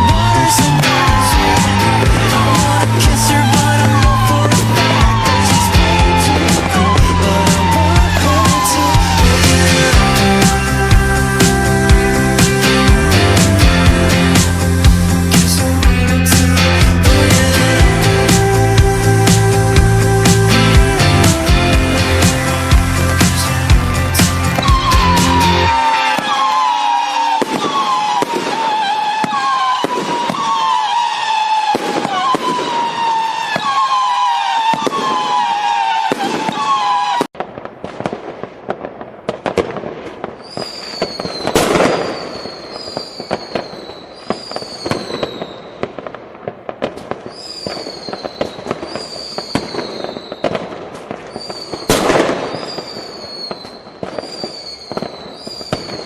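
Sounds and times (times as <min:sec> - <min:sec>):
firework bangs: 0:00.0 - 0:18.4, 0:21.2 - 0:56.0
repeating falling tone: 0:00.0 - 0:30.5
fireworks crackling: 0:00.0 - 0:56.0.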